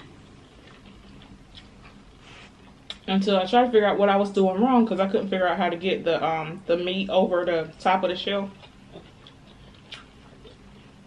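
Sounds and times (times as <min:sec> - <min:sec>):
person chewing food: 0:00.0 - 0:03.0, 0:08.5 - 0:11.0.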